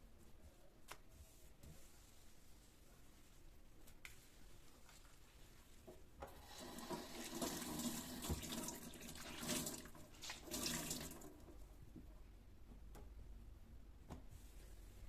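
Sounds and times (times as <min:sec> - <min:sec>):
water running from tap into sink: 0:06.4 - 0:11.4.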